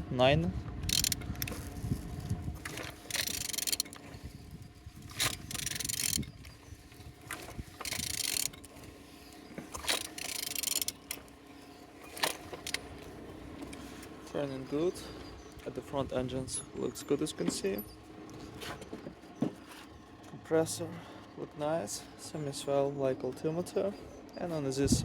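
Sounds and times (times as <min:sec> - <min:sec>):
ratchet wrench clicking: 0:00.9 - 0:01.7, 0:02.7 - 0:04.0, 0:05.1 - 0:06.3, 0:07.8 - 0:08.7, 0:09.8 - 0:11.2.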